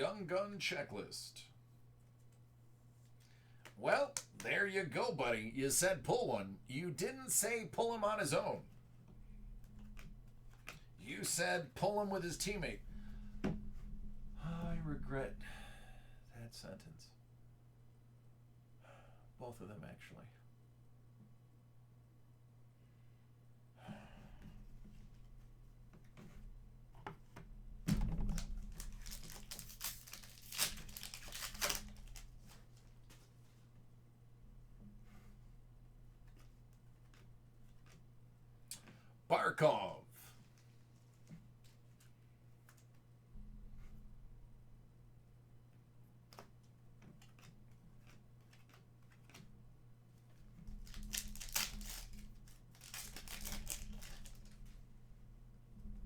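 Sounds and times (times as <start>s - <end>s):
wrapper crinkling and tearing: 28.3s - 33.3s, 50.7s - 54.8s
cards clicking while handled: 28.6s - 33.2s, 47.1s - 49.4s, 50.8s - 54.6s.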